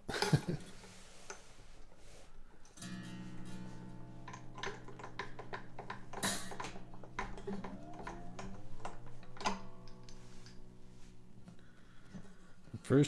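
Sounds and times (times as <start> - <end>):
guitar strings ringing: 2.8 - 13.0
string pitch gliding up: 2.8 - 13.0
string winder clicking: 2.8 - 13.0.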